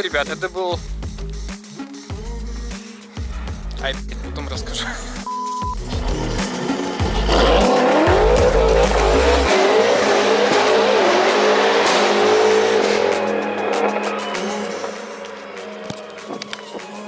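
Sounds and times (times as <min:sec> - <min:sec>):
car engine accelerating hard: 0:05.8 - 0:15.8.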